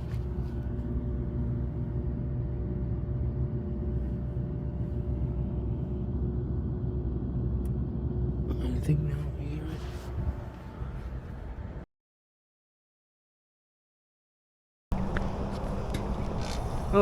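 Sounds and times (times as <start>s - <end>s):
air-conditioning hum and rumble: 0.0s - 11.9s, 14.9s - 17.0s.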